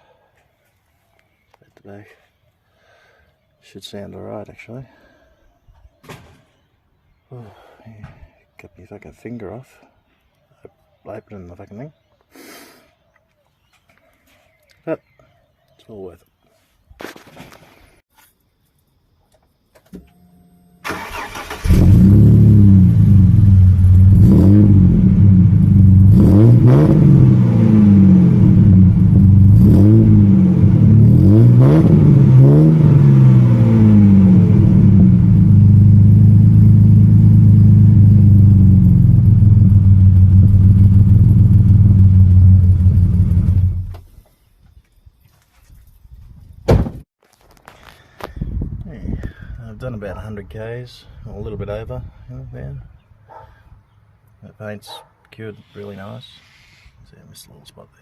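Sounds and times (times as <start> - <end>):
car engine cranking and starting: 19.9 - 35.9, 38.1 - 44.1
car engine revving and idling: 21.6 - 44.0.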